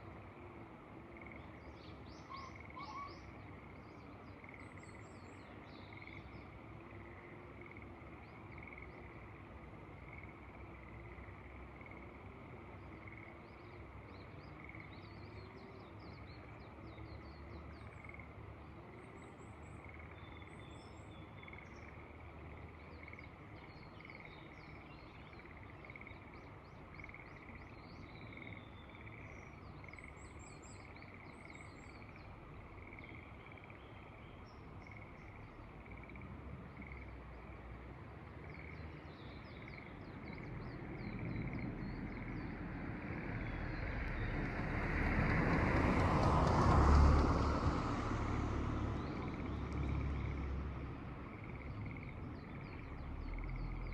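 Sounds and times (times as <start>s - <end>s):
frogs calling: 0.4s - 15.8s, 16.4s - 44.3s, 49.0s - 53.9s.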